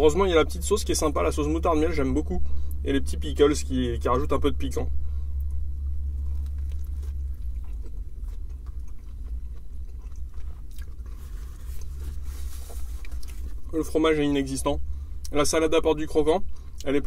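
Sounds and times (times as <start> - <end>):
low car cabin rumble: 0.0 - 17.0
man chewing food: 5.4 - 13.8.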